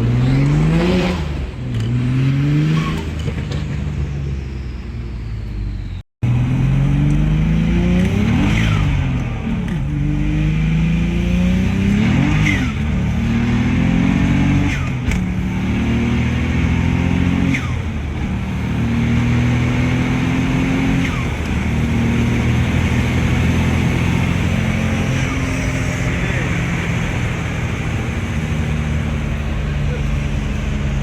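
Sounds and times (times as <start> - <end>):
car engine accelerating through gears: 0.0 - 3.9, 5.5 - 31.0.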